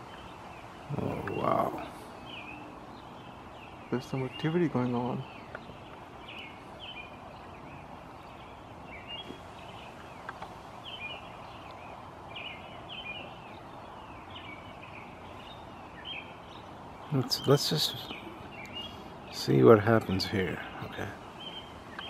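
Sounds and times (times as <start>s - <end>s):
small birds chirping: 0.0s - 22.0s
steady background hiss: 0.0s - 22.0s.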